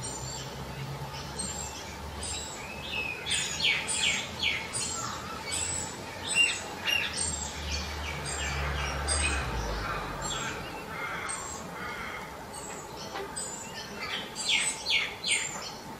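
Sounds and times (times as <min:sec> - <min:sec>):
wild birds chirping: 0:00.0 - 0:15.9.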